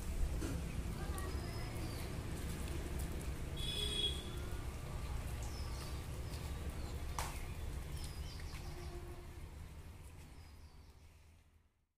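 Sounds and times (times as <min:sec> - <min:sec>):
birds chirping: 0:00.7 - 0:02.5, 0:05.3 - 0:09.2.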